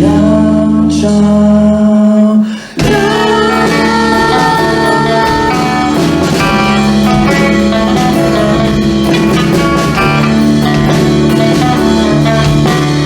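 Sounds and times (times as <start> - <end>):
electric guitar chords: 2.8 - 13.0
live rock band playing: 2.8 - 13.0.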